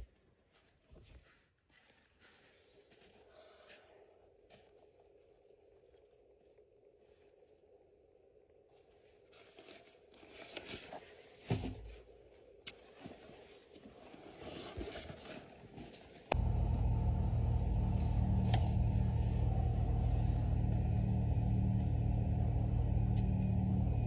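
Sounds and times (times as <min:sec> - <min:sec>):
car engine running: 0:16.3 - 0:24.0.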